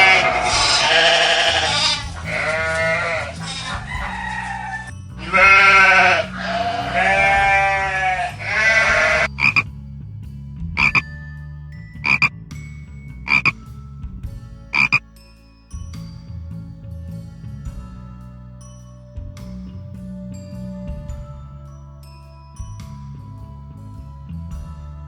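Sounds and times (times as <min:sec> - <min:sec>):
animal bleating: 0:00.0 - 0:09.6, 0:10.8 - 0:11.0, 0:12.1 - 0:12.3, 0:14.8 - 0:15.0
frog croaking: 0:00.0 - 0:09.6, 0:10.8 - 0:11.1, 0:12.0 - 0:12.3, 0:13.3 - 0:13.5, 0:14.8 - 0:15.0.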